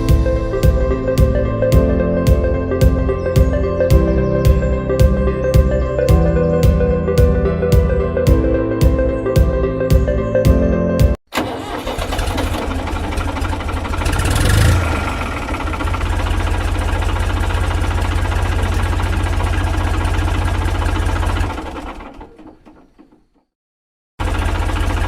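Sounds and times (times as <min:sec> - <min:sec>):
mini tractor engine pulsing: 0:11.3 - 0:23.5, 0:24.2 - 0:25.0.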